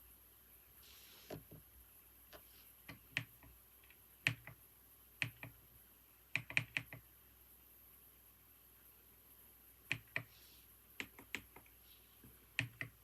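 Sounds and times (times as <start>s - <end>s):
computer keyboard keys tapped: 2.8s - 4.6s, 5.2s - 5.6s, 6.3s - 7.0s, 9.9s - 10.3s, 11.0s - 11.7s, 12.6s - 13.0s.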